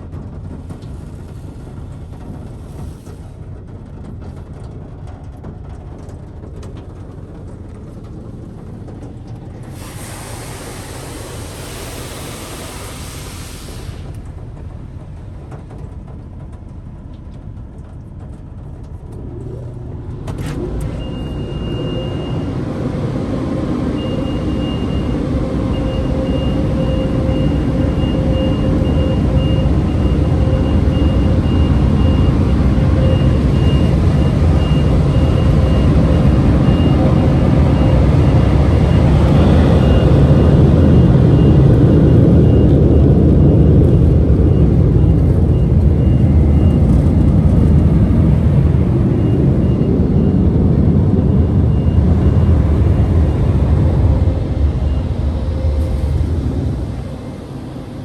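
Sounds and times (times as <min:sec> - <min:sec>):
car wash machinery running: 0:00.0 - 0:58.0
machine rumble with whine: 0:00.0 - 0:58.0
car wash spray hissing: 0:09.5 - 0:14.5.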